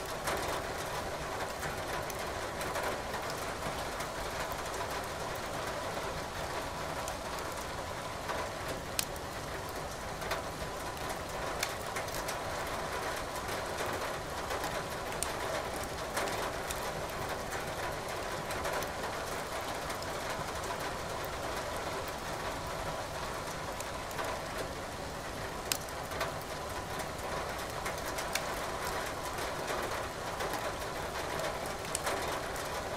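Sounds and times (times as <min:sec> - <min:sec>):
firewood crackling and popping: 0:09.0 - 0:09.3, 0:11.6 - 0:12.3, 0:15.0 - 0:15.9, 0:25.7 - 0:26.6, 0:27.6 - 0:28.5, 0:31.7 - 0:32.1.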